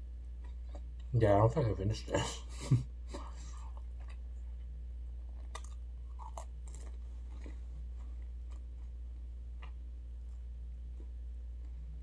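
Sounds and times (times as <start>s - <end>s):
steady low hum: 0.0s - 12.0s
chewing pizza crust: 0.3s - 1.1s, 3.1s - 12.0s.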